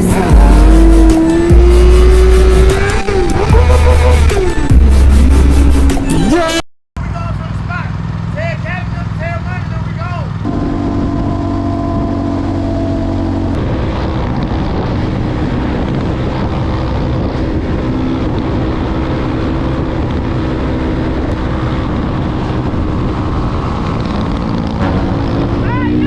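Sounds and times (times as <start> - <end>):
motorcycle engine running: 0.0 - 6.0, 7.4 - 26.0
wind on microphone: 10.5 - 25.7.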